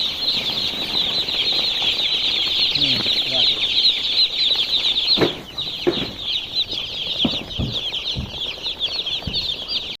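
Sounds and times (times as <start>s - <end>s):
chicks peeping: 0.0s - 10.0s
soft low thumps: 5.2s - 9.7s.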